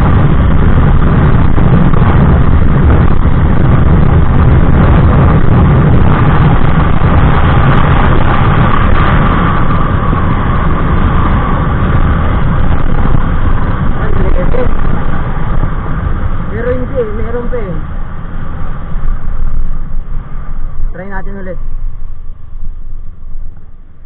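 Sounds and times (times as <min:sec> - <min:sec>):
scooter engine at top speed: 0:00.0 - 0:20.3
wind rush on microphone: 0:00.0 - 0:24.0.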